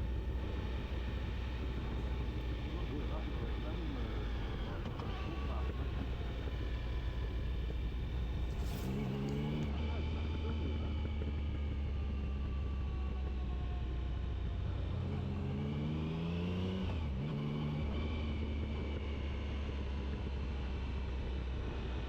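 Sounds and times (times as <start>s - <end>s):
motorcycle engine running: 0.0s - 9.7s.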